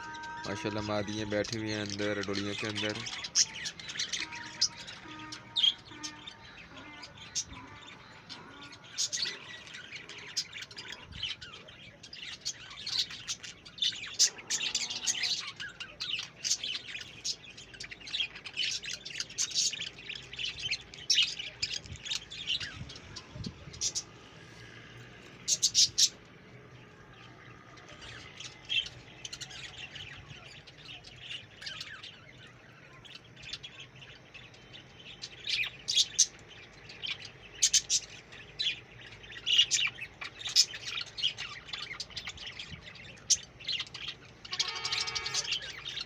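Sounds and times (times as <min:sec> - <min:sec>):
budgerigars chirping: 0:00.0 - 0:24.2, 0:25.4 - 0:26.3, 0:27.2 - 0:46.0.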